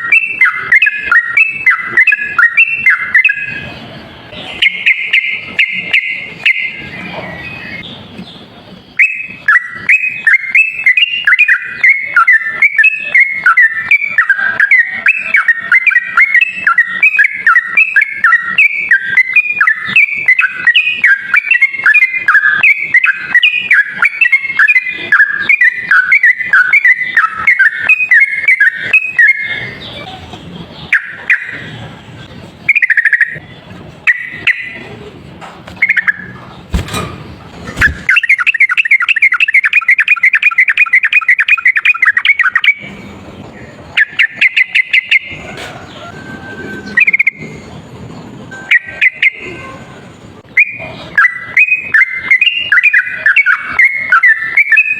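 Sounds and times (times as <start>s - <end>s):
bird chattering song: 0.0s - 46.2s, 50.2s - 54.9s.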